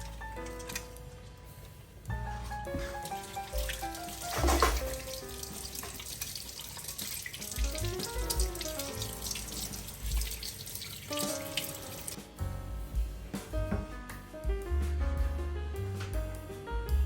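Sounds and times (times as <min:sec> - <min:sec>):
tap water running: 0:00.0 - 0:12.2
soft slow background music: 0:00.0 - 0:17.0.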